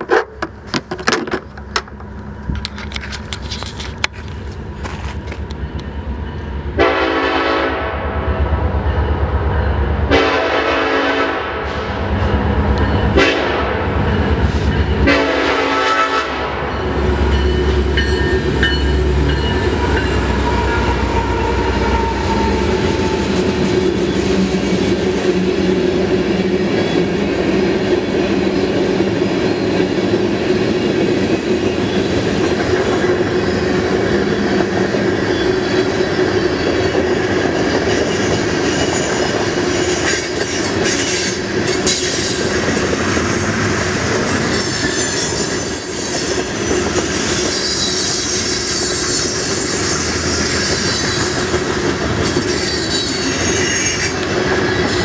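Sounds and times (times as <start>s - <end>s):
locomotive horn: 6.8s - 8.6s, 10.1s - 12.2s, 13.1s - 14.0s, 15.0s - 16.7s, 19.7s - 23.6s
train wheels clickety-clack: 16.9s - 55.0s.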